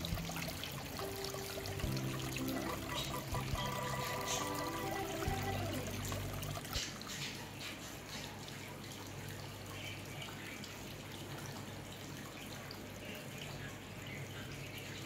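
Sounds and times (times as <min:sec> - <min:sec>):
low steady hum: 0:00.0 - 0:07.0
water trickling and dripping: 0:00.0 - 0:15.0.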